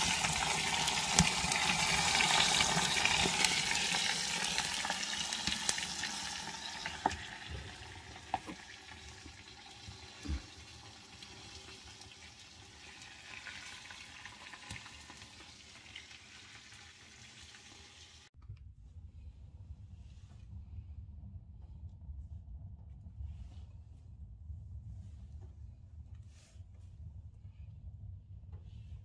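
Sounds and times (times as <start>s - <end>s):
fat sizzling in a fire: 0.0s - 18.3s.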